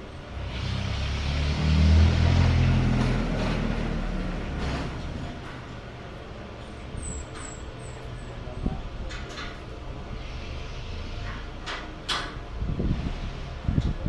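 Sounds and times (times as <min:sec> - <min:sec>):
vehicle passing by: 0:00.0 - 0:05.4.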